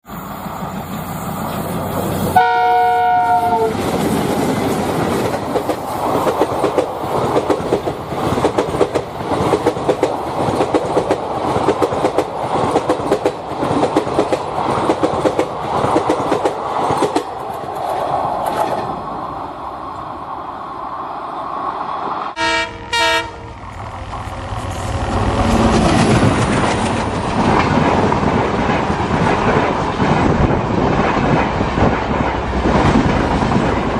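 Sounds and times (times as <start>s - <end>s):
train horn: 2.4s - 3.8s, 22.4s - 23.6s
train wheels clattering over rails: 3.6s - 19.0s, 23.8s - 33.9s.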